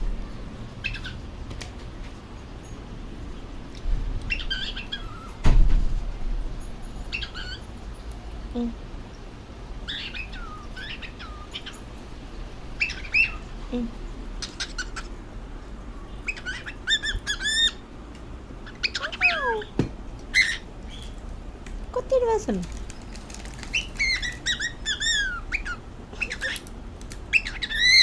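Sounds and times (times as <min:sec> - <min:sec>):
cockatiel chirping and squawking: 0:00.8 - 0:01.2, 0:04.3 - 0:05.4, 0:07.1 - 0:07.6, 0:09.8 - 0:11.8, 0:12.8 - 0:13.5, 0:14.4 - 0:15.2, 0:16.2 - 0:17.8, 0:18.6 - 0:19.7, 0:20.3 - 0:21.2, 0:23.6 - 0:26.7, 0:27.3 - 0:28.0.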